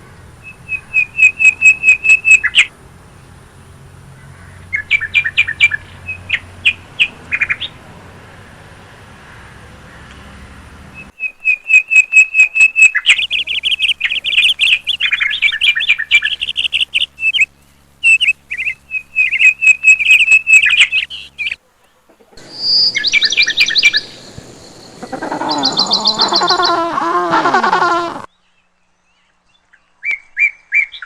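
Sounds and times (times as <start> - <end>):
small birds chirping: 0.0 - 3.4, 4.2 - 7.8, 11.0 - 27.0
lower whistled bird call: 0.4 - 2.7, 11.0 - 21.6, 22.4 - 27.0, 29.2 - 31.0.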